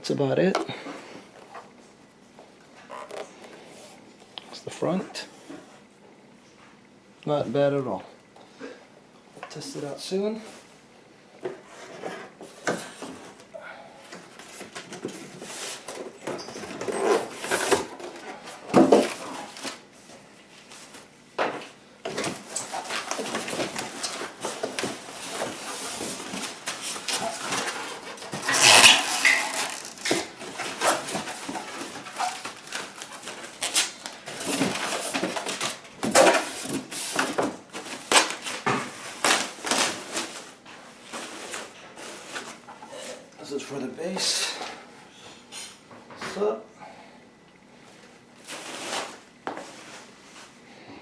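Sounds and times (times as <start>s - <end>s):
packaging rustling and knocking: 21.5s - 40.4s.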